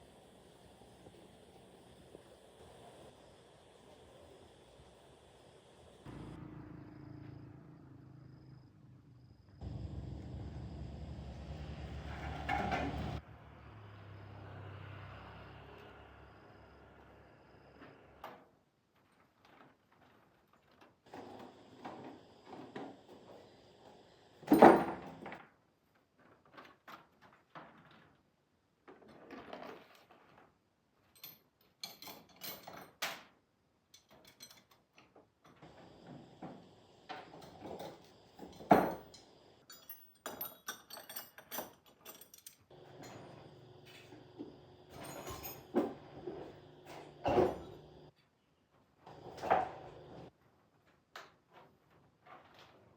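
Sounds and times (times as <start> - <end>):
metal parts knocking and clanking: 34.0 - 35.2, 37.1 - 43.4, 44.9 - 48.1.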